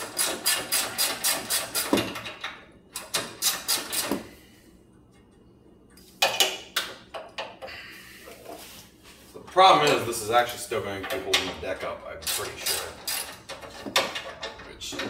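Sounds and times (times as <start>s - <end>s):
ratchet wrench clicking: 12.2s - 14.2s.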